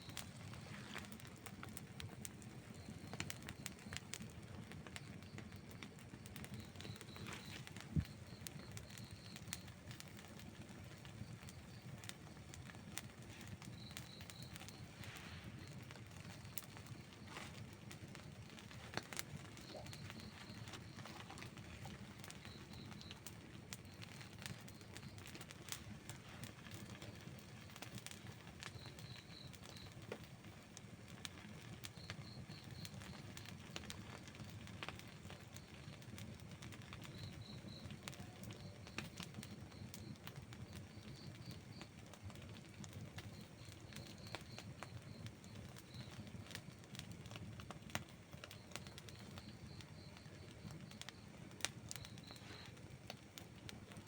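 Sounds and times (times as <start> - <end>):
campfire crackling and popping: 0.0 - 54.0
low rush of flame: 5.8 - 29.8
faint high pulsed chirp: 13.4 - 23.2.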